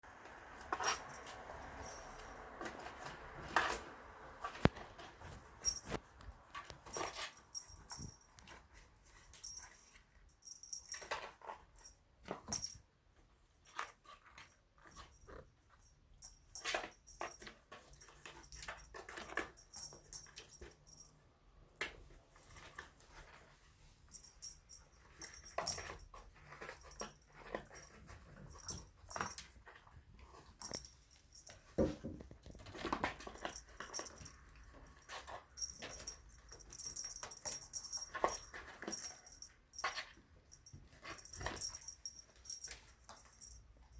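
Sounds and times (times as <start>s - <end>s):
kittens scratching cardboard: 0.1s - 10.2s, 25.0s - 43.5s.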